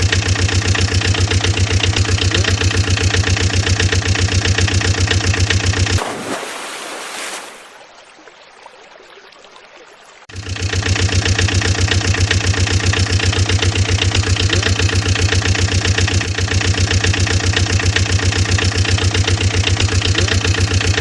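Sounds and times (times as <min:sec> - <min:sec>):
engine idling with chugging: 0:00.0 - 0:06.0, 0:10.3 - 0:21.0.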